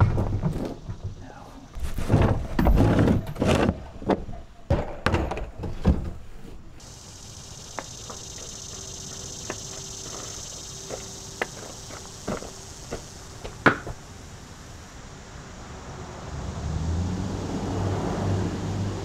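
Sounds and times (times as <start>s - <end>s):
hard knocks and thumps: 1.8s - 6.2s
steady high hiss: 6.6s - 19.0s.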